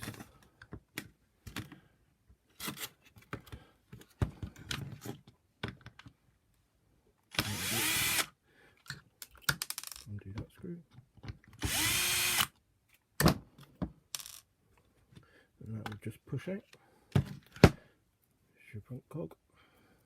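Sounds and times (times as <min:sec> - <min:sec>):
power screwdriver whirring: 0:07.3 - 0:08.3, 0:11.6 - 0:12.5
plastic parts clicking: 0:08.8 - 0:10.1.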